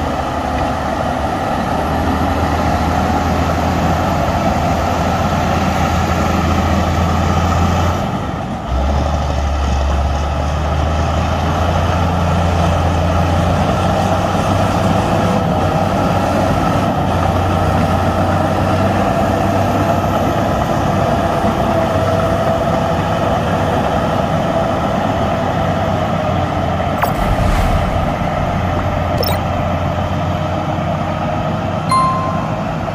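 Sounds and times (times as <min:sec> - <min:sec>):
steady whine: 0:27.0 - 0:30.6.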